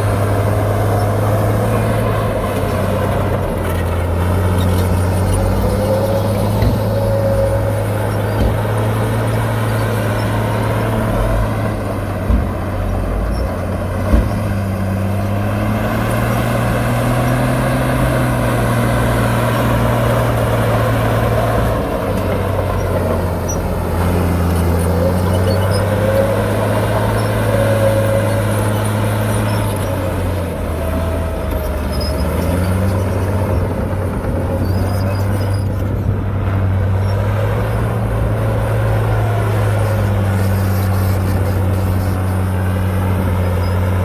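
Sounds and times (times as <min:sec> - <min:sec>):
heavy diesel engine droning: 0:00.0 - 0:44.0
short knocks: 0:10.3 - 0:15.0.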